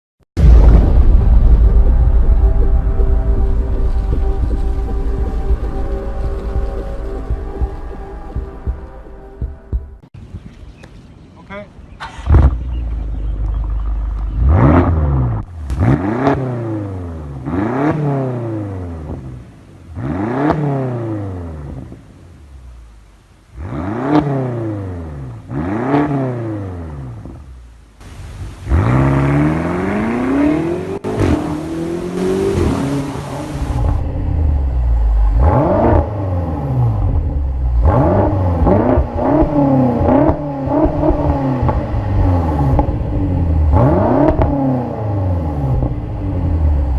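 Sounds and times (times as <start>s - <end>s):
engine revving and accelerating: 12.2s - 19.3s, 20.0s - 21.9s, 23.6s - 27.4s, 28.7s - 46.9s.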